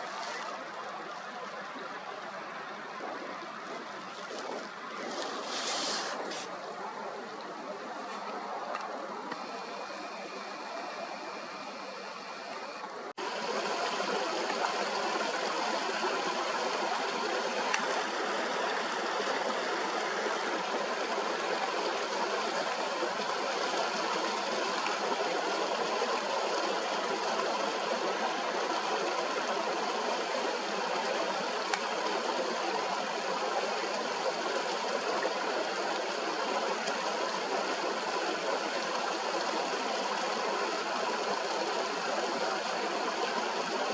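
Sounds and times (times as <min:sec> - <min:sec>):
stream rushing over rocks: 0:12.9 - 0:43.9.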